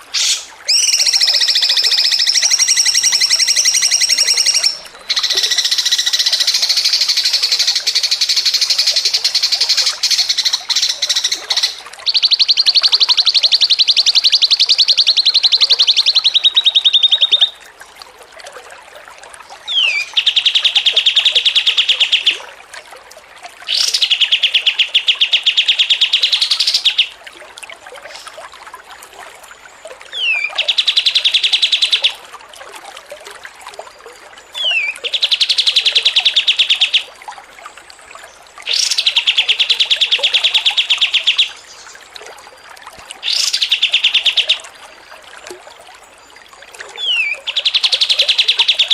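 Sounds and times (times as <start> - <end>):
songbird trilling: 0.1 - 17.6, 19.6 - 22.3, 30.1 - 32.1, 34.6 - 37.1, 38.7 - 41.9, 43.2 - 44.6, 47.0 - 48.9.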